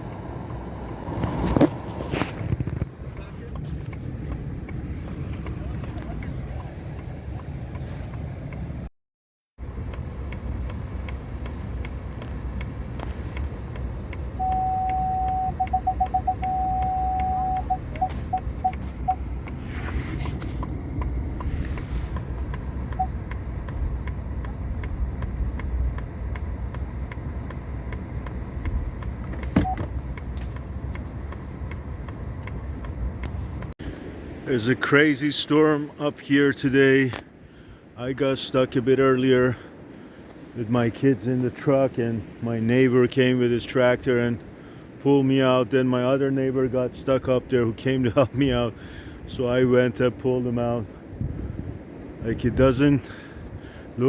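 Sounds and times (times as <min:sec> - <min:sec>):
vehicle engine rumbling: 0:00.0 - 0:08.9, 0:09.6 - 0:54.0
electronic beeps: 0:14.4 - 0:19.2, 0:29.6 - 0:29.9.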